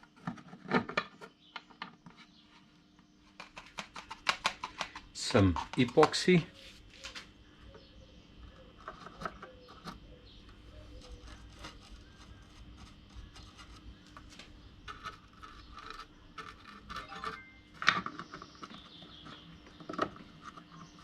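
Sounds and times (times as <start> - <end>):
clicks and scrapes of hand tools: 11.0 - 18.4.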